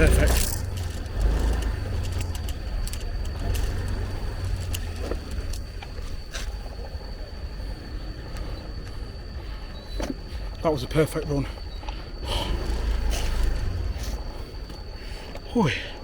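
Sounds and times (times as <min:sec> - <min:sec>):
light clicks: 0:00.0 - 0:06.5.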